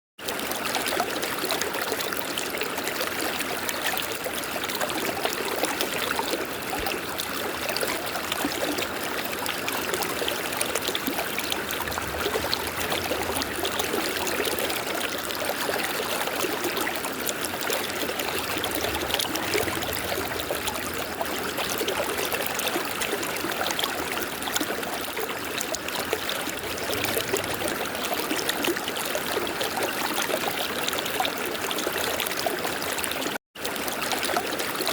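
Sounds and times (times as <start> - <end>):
river water flowing over rocks: 0.6 - 34.9.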